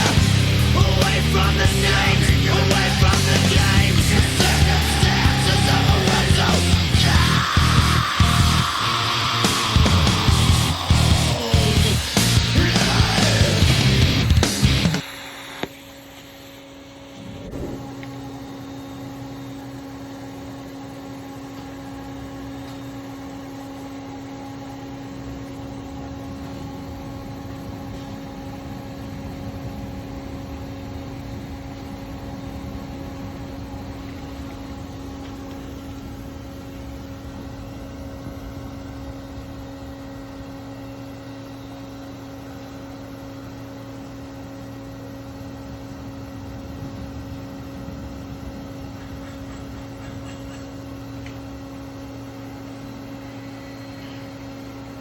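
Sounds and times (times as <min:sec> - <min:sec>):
welding hiss: 0:00.0 - 0:19.3
welding hum: 0:00.0 - 0:55.0.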